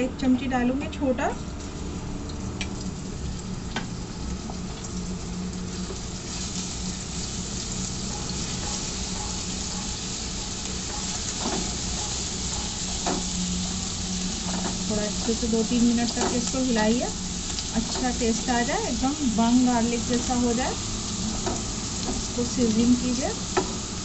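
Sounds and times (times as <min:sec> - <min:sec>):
paste sizzling in hot oil: 0:02.8 - 0:24.0
spoon knocking in pan: 0:08.0 - 0:13.4.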